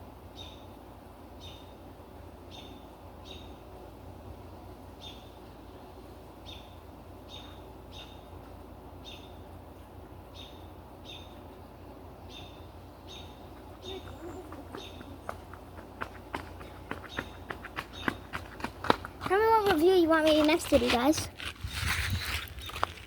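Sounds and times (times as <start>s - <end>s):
bird chirping: 1.4s - 1.8s, 2.4s - 3.7s, 4.9s - 8.4s, 9.0s - 11.6s, 12.2s - 18.6s.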